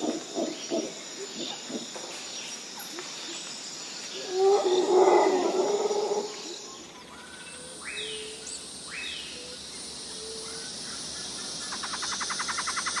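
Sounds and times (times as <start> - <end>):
wild birds calling: 0.0 - 2.3, 4.1 - 13.0.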